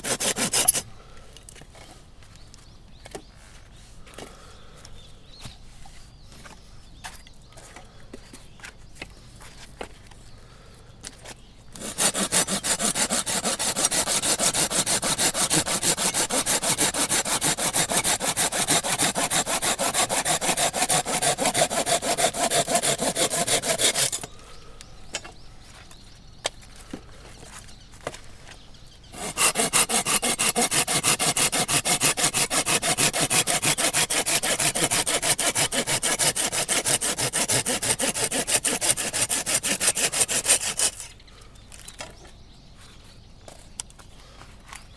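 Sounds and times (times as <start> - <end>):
hand saw cutting log: 0.0 - 0.9, 11.7 - 24.4, 29.1 - 41.2.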